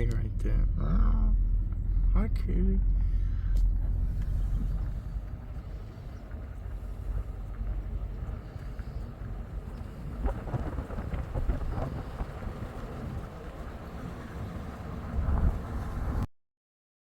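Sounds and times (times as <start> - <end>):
wind buffeting microphone: 3.7 - 16.2.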